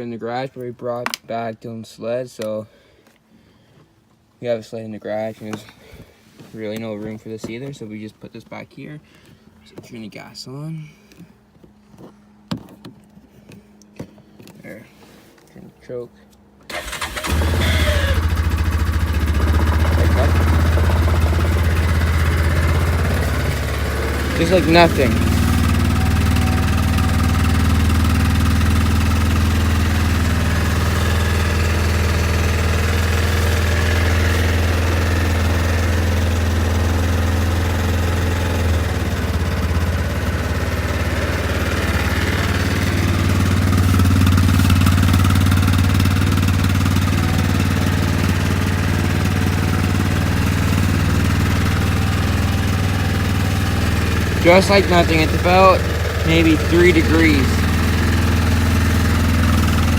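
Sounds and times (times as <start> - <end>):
atv engine idling: 16.7 - 59.9.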